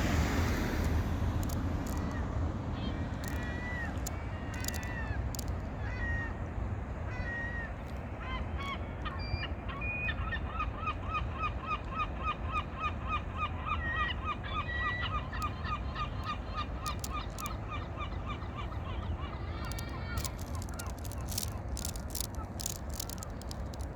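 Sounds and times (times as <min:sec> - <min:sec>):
steady low rumble: 0:00.0 - 0:04.4
water birds calling: 0:00.0 - 0:23.9.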